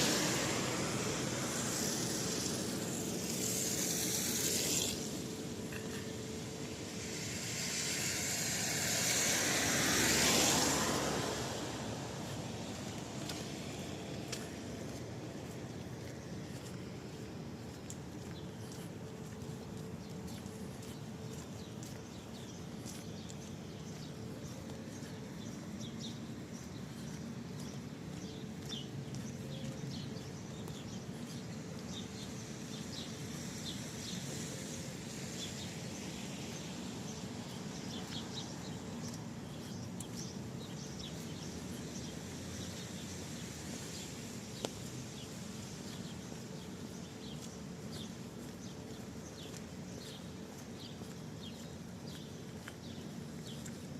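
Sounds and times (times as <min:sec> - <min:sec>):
footsteps walking: 0:00.0 - 0:09.1, 0:11.2 - 0:53.9
steady rain: 0:00.0 - 0:20.6, 0:30.2 - 0:53.6
small birds chirping: 0:12.2 - 0:53.9.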